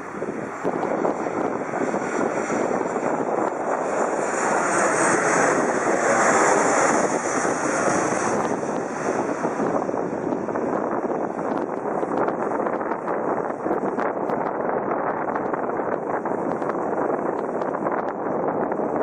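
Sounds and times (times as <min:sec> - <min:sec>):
jet airliner passing overhead: 0:00.0 - 0:19.0.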